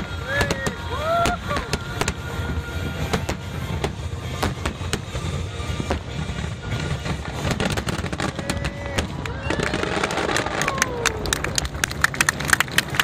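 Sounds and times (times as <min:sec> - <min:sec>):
music playing: 0:00.0 - 0:09.3
fireworks bangs: 0:00.0 - 0:13.0.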